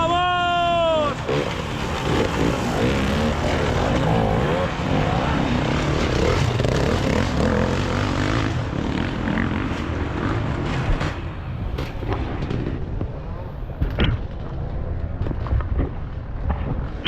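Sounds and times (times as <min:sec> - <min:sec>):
motorcycle engine revving: 0:01.2 - 0:11.4.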